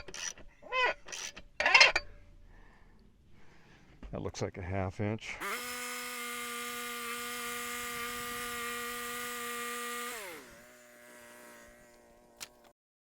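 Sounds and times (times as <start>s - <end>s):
electric drill motor whining: 5.4s - 12.8s.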